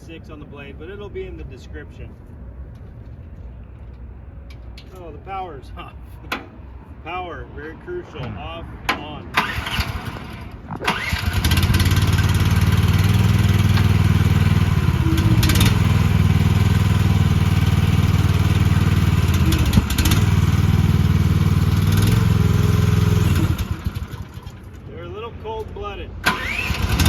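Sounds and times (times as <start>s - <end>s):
small engine cranking: 9.4s - 14.2s, 26.2s - 27.0s.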